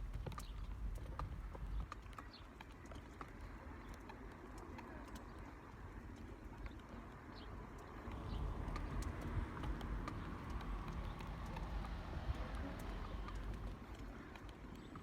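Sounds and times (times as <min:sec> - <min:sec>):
low wind rumble: 0:05.9 - 0:14.8.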